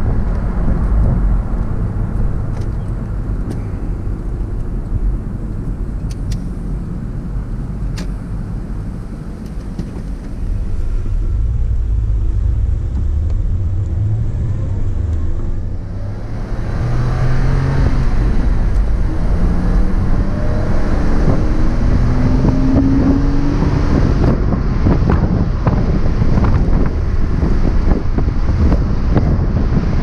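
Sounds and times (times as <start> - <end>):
car engine accelerating: 8.9 - 30.0
wind rushing: 10.0 - 30.0.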